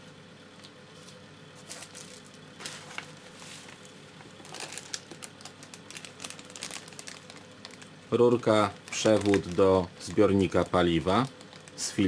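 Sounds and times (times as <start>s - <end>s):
plastic packaging crinkling: 1.6s - 12.0s.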